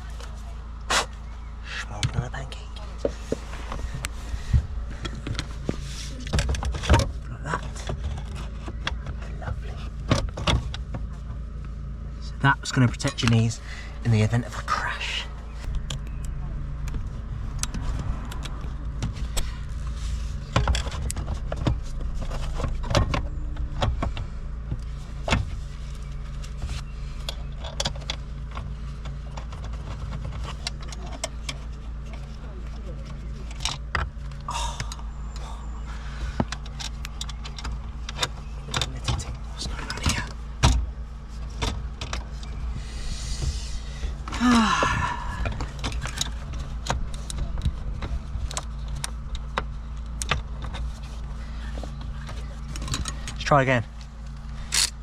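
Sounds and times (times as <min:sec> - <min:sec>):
steady low hum: 0:00.0 - 0:55.0
parts clicking and knocking: 0:15.6 - 0:55.0
man sighing: 0:34.5 - 0:35.6, 0:44.3 - 0:45.6.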